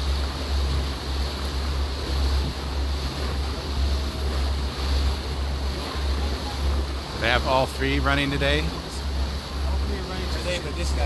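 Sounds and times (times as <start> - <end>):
wind on microphone: 0.0 - 7.1
motorboat engine and wash: 0.0 - 11.0.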